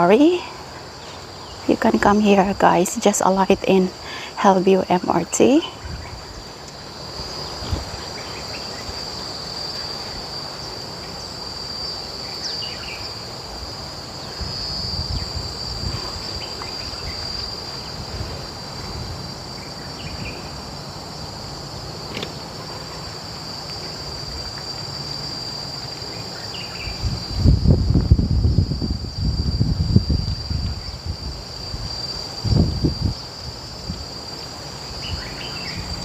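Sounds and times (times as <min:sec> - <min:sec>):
insects droning: 0:00.0 - 0:36.0
wind on microphone: 0:05.0 - 0:08.2, 0:13.6 - 0:19.4, 0:26.8 - 0:34.2.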